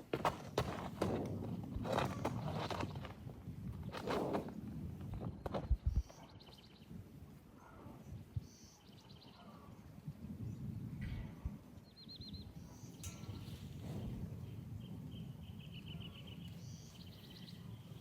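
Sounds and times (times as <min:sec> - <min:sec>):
small bird chirping trills: 0:11.8 - 0:18.0.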